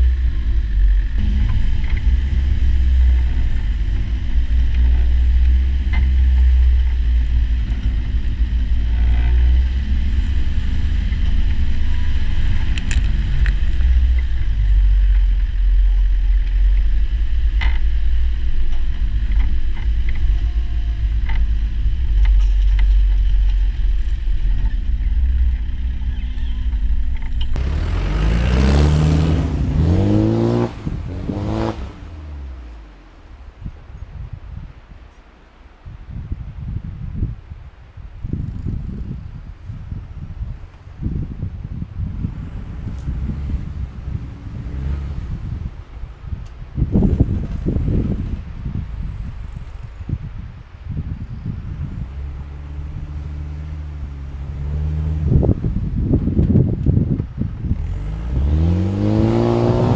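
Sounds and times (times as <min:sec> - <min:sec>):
clunks and rattles: 0:00.0 - 0:31.8, 0:46.4 - 0:48.6
car engine running: 0:00.0 - 0:33.8, 0:42.2 - 0:50.0, 0:51.8 - 0:59.9.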